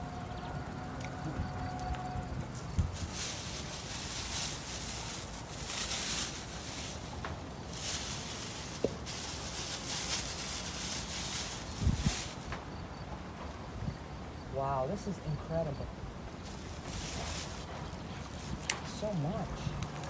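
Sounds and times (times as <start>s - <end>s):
plants rustling: 2.5s - 12.7s, 16.3s - 20.0s.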